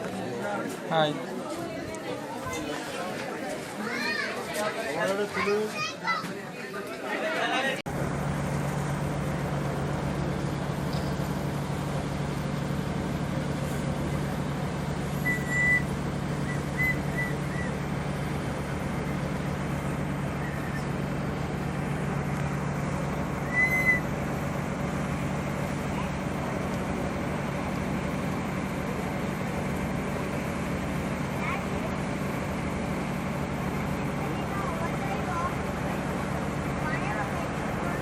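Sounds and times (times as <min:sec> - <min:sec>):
vehicle engine droning: 0:07.9 - 0:38.0
high whistle-like chirps: 0:15.2 - 0:17.8, 0:23.4 - 0:24.1.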